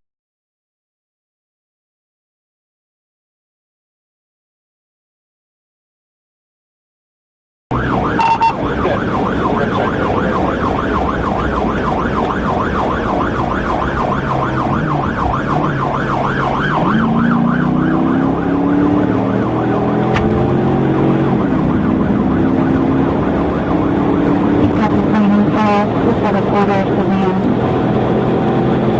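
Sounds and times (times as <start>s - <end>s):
car engine and road noise: 7.7s - 28.9s
police siren yelping: 7.7s - 28.9s.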